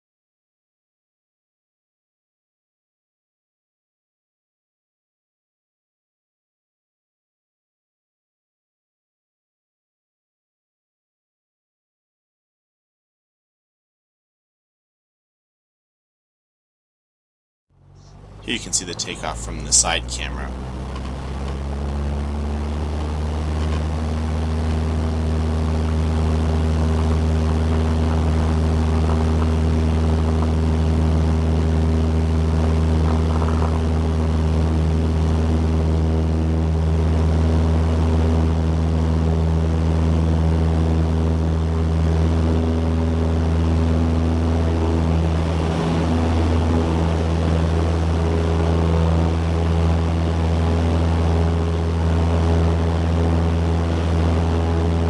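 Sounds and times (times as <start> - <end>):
propeller airplane engine drone: 17.8 - 55.0.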